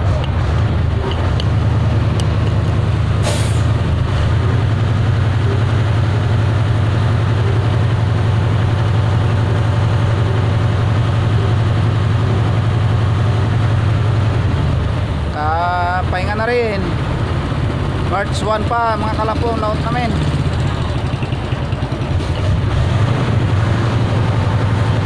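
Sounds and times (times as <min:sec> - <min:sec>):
heavy engine droning: 0:00.0 - 0:25.0.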